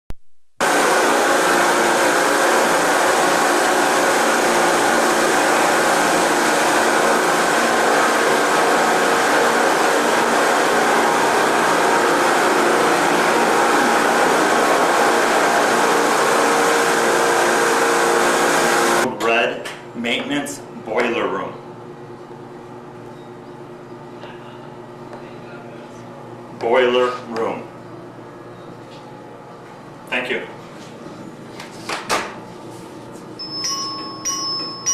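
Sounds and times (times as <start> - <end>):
loud steady rushing noise: 0.6 - 19.1.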